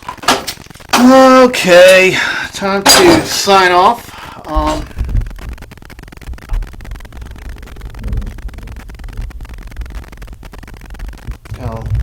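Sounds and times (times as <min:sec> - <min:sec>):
microphone handling noise: 0:04.5 - 0:12.0.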